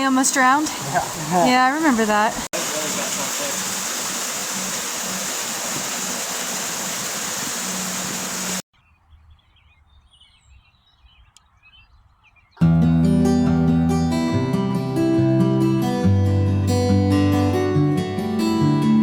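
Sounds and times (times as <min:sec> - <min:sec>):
flowing water rushing: 0:00.0 - 0:08.6
acoustic guitar music: 0:12.6 - 0:19.0.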